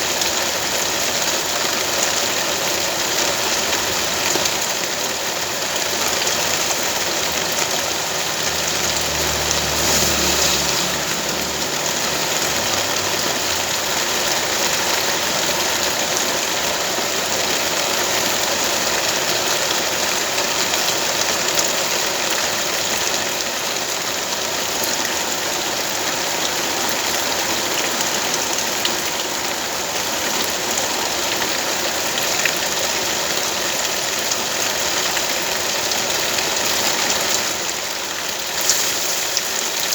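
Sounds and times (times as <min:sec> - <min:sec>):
rain hissing: 0:00.0 - 0:39.9
low engine hum: 0:06.2 - 0:14.8.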